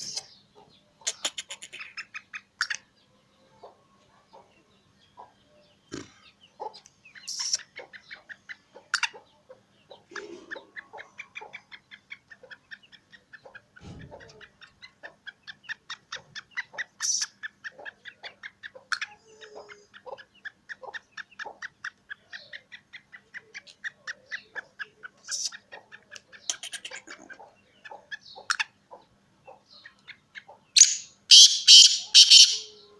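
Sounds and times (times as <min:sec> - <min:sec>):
loud harsh bird calls: 0:00.0 - 0:03.0, 0:30.7 - 0:32.9
francolin calling rapid notes: 0:30.8 - 0:32.8.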